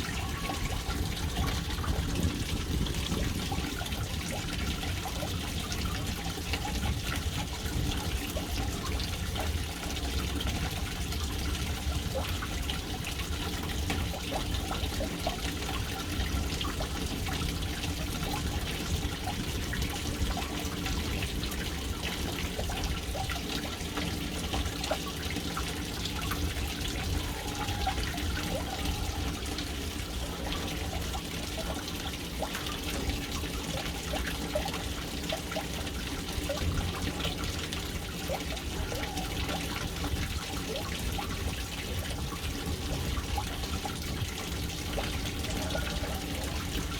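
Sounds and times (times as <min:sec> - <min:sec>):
water trickling into tank: 0:00.0 - 0:46.9.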